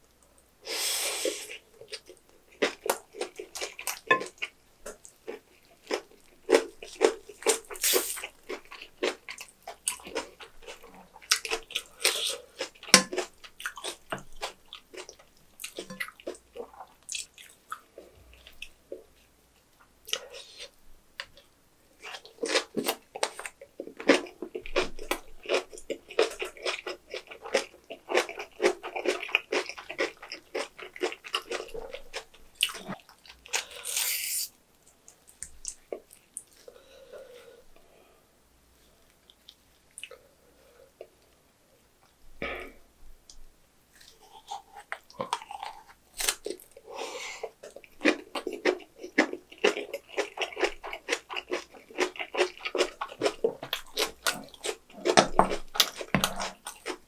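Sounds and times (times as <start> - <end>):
wet crunchy chewing: 22.0 - 34.2, 47.5 - 57.0
cabbage leaves tearing: 46.1 - 46.6.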